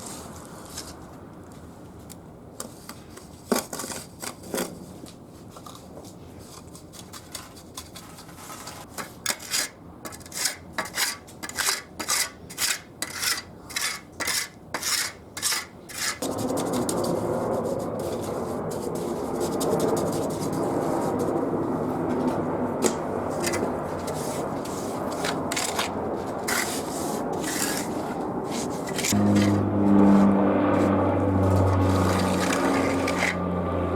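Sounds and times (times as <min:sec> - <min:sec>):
hand tool rasping: 0:09.3 - 0:16.3, 0:25.0 - 0:29.6
steady rushing noise: 0:16.2 - 0:33.9.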